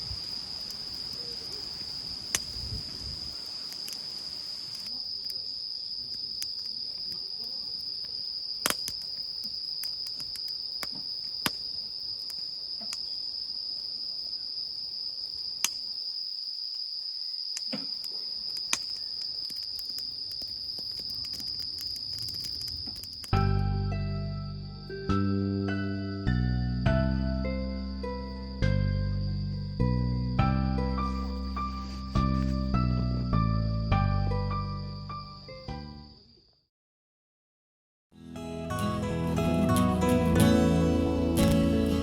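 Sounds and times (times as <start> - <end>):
crickets chirping: 0.0 - 36.7, 38.2 - 42.0
sharp pops: 8.6 - 9.1
background music: 23.4 - 35.9, 38.2 - 42.0.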